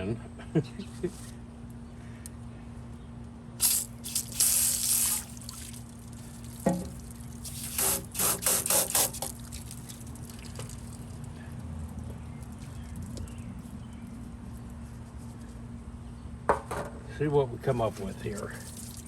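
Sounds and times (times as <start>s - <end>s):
single knock: 16.5s - 17.0s.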